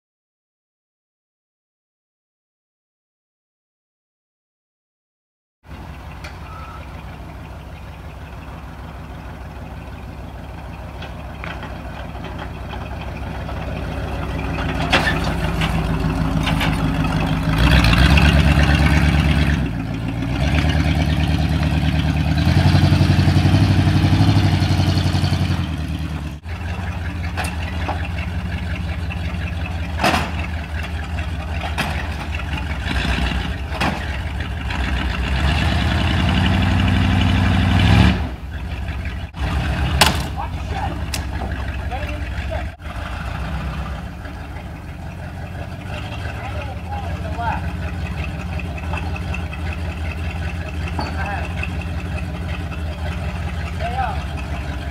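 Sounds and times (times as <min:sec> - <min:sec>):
truck engine revving: 0:05.7 - 0:54.9.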